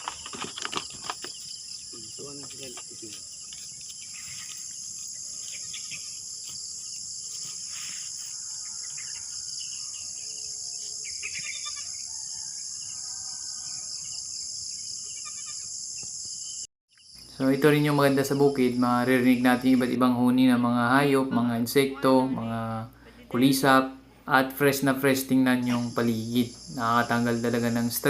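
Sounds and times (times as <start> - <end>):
insects chorus: 0.0 - 28.0
faint bird chirps: 0.1 - 18.5.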